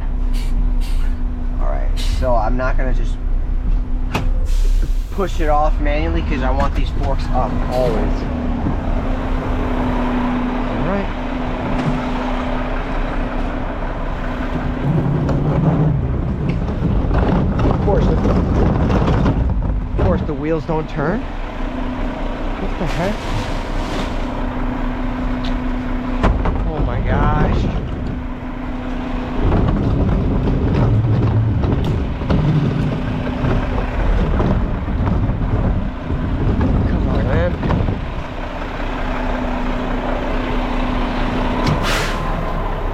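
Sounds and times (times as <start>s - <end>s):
garbage truck diesel engine: 0.0s - 42.9s
lower louder engine hum: 0.0s - 42.9s.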